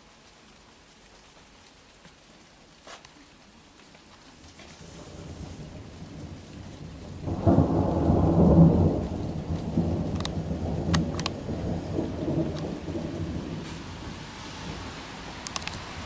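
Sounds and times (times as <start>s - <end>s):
rain falling: 0.0s - 16.0s
thunder clap and rumble: 4.9s - 16.0s.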